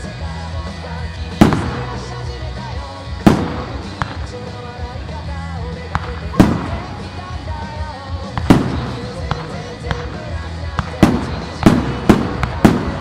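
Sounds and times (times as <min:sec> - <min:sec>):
music playing: 0:00.0 - 0:13.0
firework shells bursting: 0:01.4 - 0:02.2, 0:03.2 - 0:04.8, 0:08.3 - 0:13.0
small firework cracks: 0:08.3 - 0:13.0.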